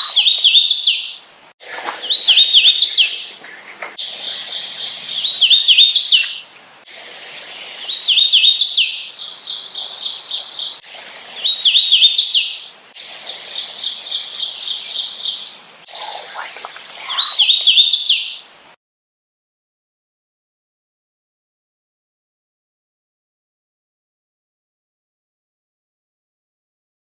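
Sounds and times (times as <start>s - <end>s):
warbler singing whistled notes: 0.0s - 6.5s, 7.4s - 18.6s.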